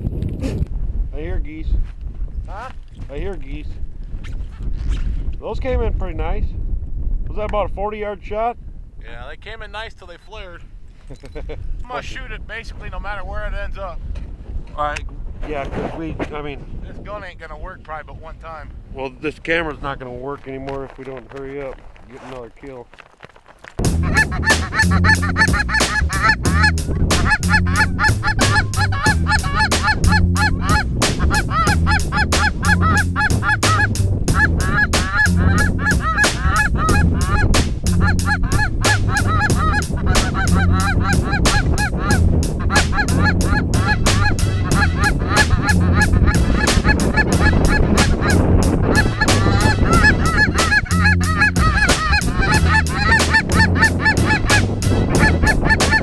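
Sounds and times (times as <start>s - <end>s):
music with beat and bass: 23.8s - 56.0s
geese honking: 23.9s - 56.0s.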